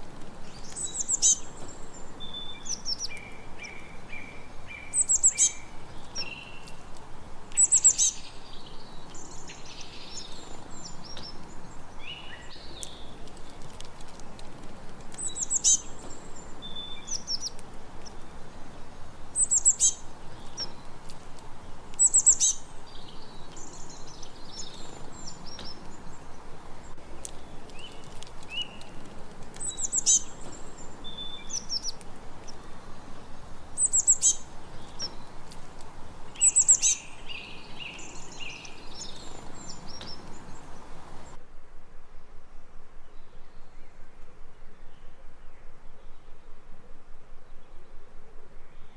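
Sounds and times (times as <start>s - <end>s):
songbirds chirping: 0.0s - 48.9s
loud high bird trill: 0.6s - 1.6s, 22.0s - 26.2s, 29.6s - 35.4s, 36.2s - 41.4s.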